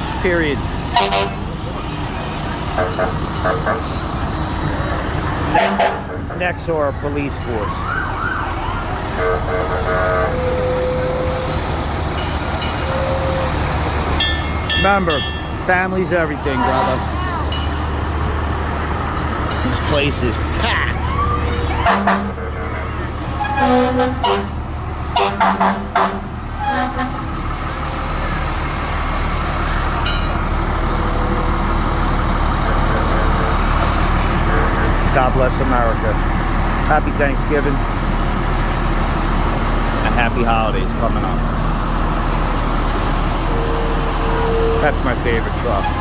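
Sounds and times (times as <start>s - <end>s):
vehicle engines rumbling: 0.0s - 46.0s
emergency vehicle horn blasts: 0.9s - 1.6s, 2.8s - 4.0s, 5.4s - 6.4s, 7.5s - 12.1s, 16.4s - 17.2s, 19.7s - 27.4s.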